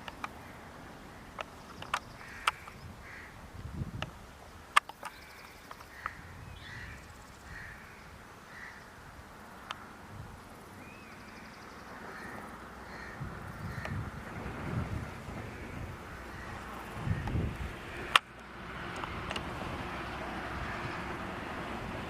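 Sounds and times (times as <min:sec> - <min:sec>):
sharp clicks: 0:00.0 - 0:00.4, 0:01.4 - 0:02.8, 0:04.7 - 0:06.2, 0:18.0 - 0:19.5
birds cawing: 0:00.0 - 0:03.4, 0:05.0 - 0:09.0, 0:10.8 - 0:14.0, 0:15.4 - 0:18.2.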